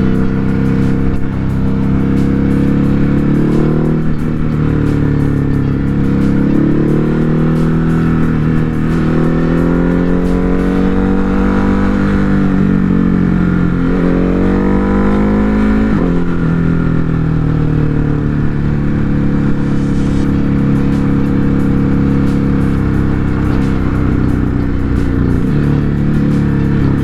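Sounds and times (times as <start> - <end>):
motorcycle engine revving: 0.0 - 27.0
wind rush: 18.2 - 26.2.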